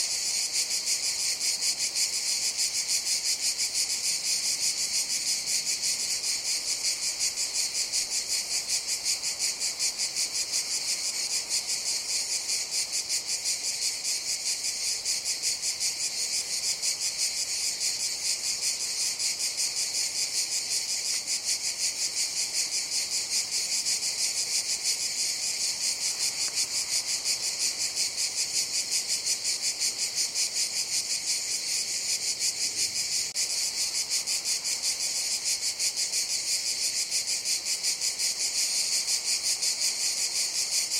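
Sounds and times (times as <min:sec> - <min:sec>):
cicadas buzzing chorus: 0:00.0 - 0:40.9.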